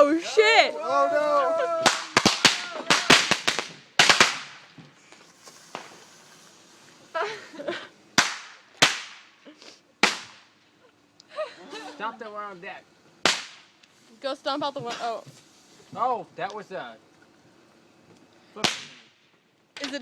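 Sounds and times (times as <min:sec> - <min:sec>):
firecrackers banging: 0:01.3 - 0:06.8, 0:08.1 - 0:10.8, 0:13.2 - 0:16.0, 0:18.6 - 0:20.0.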